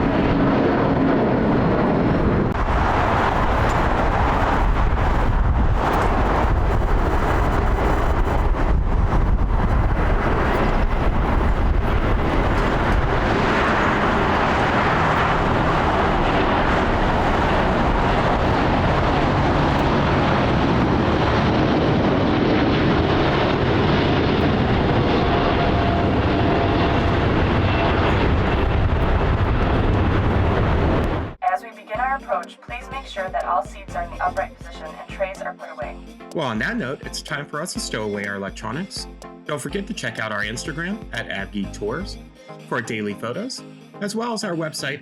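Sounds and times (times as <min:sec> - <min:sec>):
faint jet whine: 0:00.0 - 0:31.4
jet engine roar: 0:00.0 - 0:31.4.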